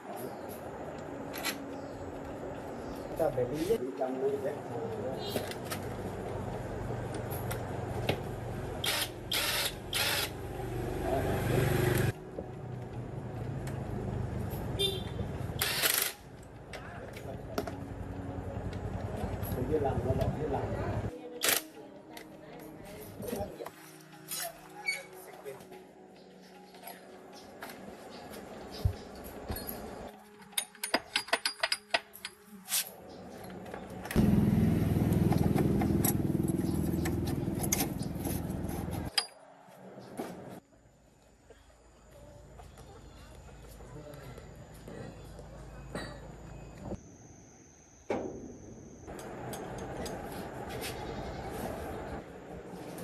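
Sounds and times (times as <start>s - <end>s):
metallic clinks and taps: 30.4s - 32.4s.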